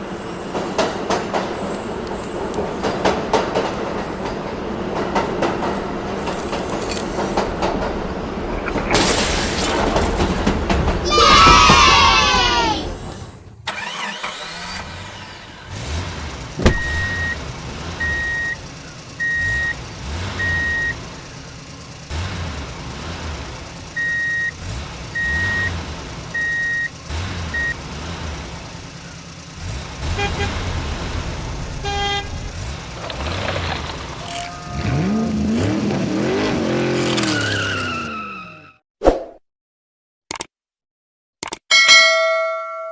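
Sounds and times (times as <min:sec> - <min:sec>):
engine rumble: 0:00.0 - 0:37.9
sharp click: 0:40.3 - 0:40.5, 0:41.4 - 0:41.7.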